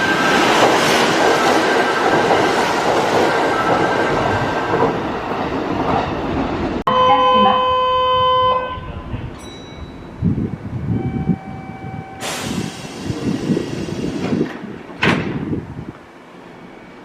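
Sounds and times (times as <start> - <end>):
train running rumble: 10.2 - 16.6
train brake squeal: 11.0 - 14.2
air brakes hissing: 12.2 - 14.7.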